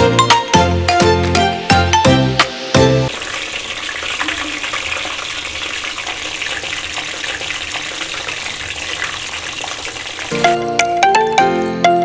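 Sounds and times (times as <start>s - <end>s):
food sizzling in a pan: 3.1s - 10.7s.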